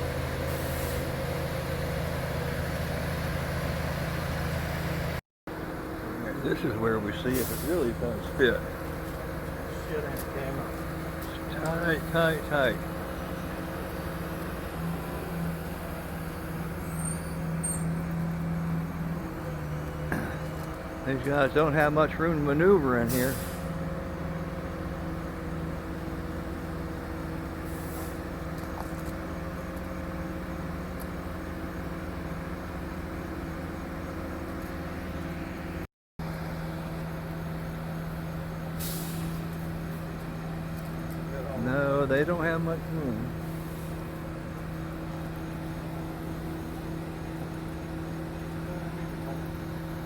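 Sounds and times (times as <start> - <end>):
crane engine running: 0.0 - 50.0
faint high squeaks: 16.8 - 18.1.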